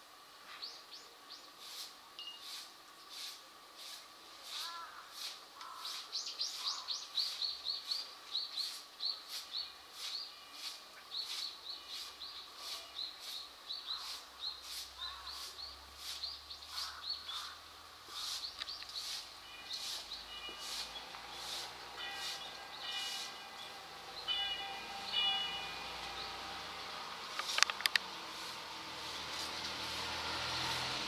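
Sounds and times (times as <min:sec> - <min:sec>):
small bird chirping: 0:04.5 - 0:28.5.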